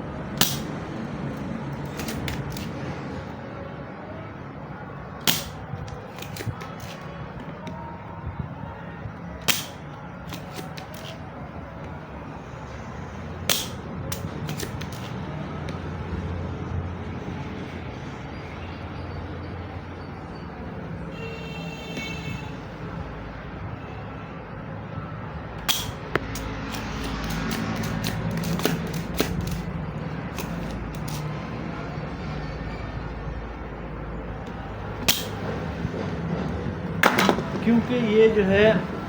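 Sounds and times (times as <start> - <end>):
scraping and handling circuit board: 26.3 - 31.3.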